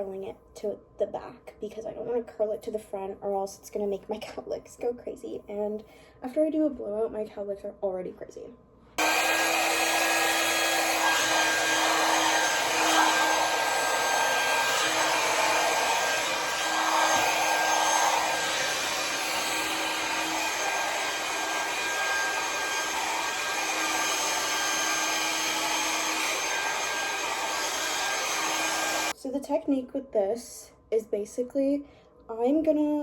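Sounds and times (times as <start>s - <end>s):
hair dryer blowing: 9.0s - 29.1s.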